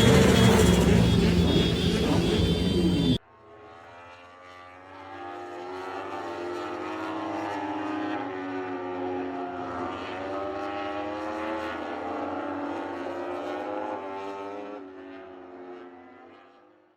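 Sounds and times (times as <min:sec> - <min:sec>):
motorcycle engines running: 0:00.0 - 0:03.2.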